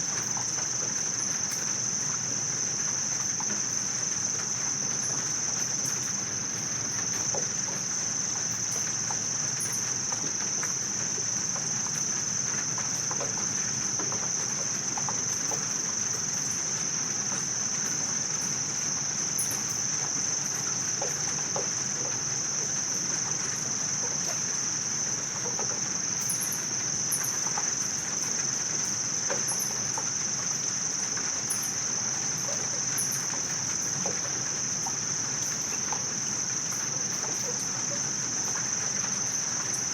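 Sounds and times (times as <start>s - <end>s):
insect chorus trilling: 0.0s - 39.9s
faint short insect chirps: 7.1s - 10.0s, 17.8s - 21.3s, 25.2s - 39.9s.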